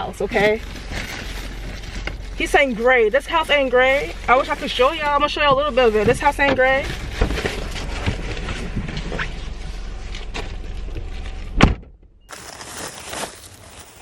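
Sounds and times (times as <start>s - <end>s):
idling car rumble: 0.0s - 14.0s
car door shutting: 10.3s - 12.1s.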